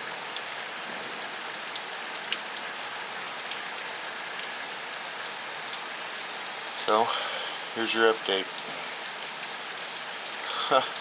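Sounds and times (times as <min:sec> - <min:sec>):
drips and splashes: 0:00.0 - 0:11.0
heavy rain downpour: 0:00.0 - 0:11.0.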